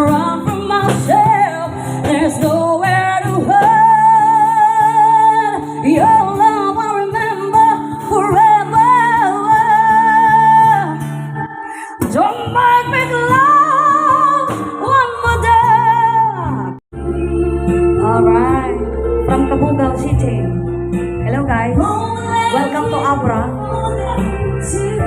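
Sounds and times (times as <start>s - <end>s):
backing track music: 0.0s - 25.0s
woman singing with vibrato: 0.0s - 25.0s.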